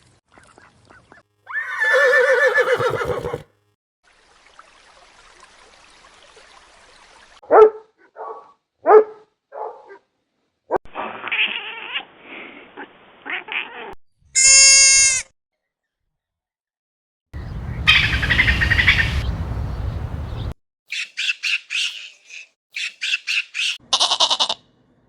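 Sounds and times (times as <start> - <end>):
high-pitched animal call: 1.5 - 3.4, 17.8 - 19.2, 23.8 - 24.6
rough animal noise: 17.4 - 20.5.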